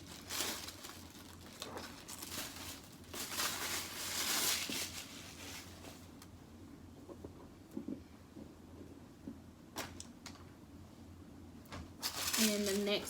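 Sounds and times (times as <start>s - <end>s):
packaging crinkling: 0.0s - 6.2s, 12.0s - 13.0s.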